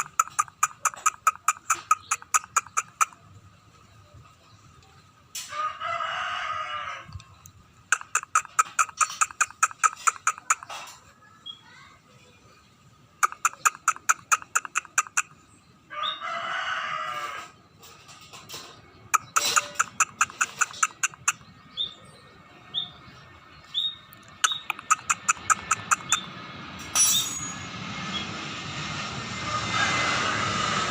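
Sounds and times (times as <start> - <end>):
small bird rapid dry clicks: 0.0 - 3.1, 7.9 - 10.9, 13.2 - 15.3, 19.1 - 21.4, 24.2 - 26.2
rooster crowing: 5.5 - 7.2, 15.9 - 17.6, 29.4 - 30.7.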